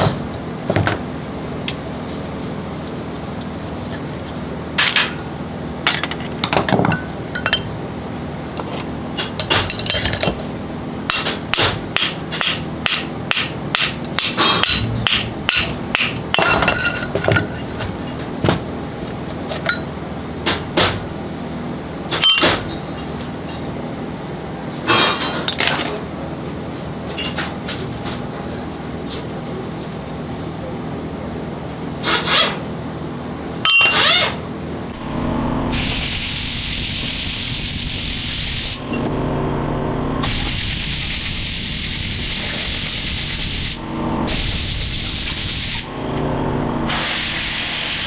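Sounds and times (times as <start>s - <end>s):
steady low hum: 0.0s - 48.0s
hammer tapping metal: 11.1s - 17.0s.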